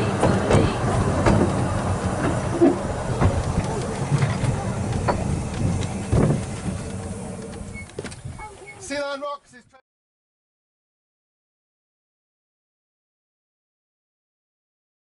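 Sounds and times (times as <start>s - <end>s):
train wheels clicking over rail joints: 0.0s - 8.6s
low steady hum: 0.0s - 8.9s.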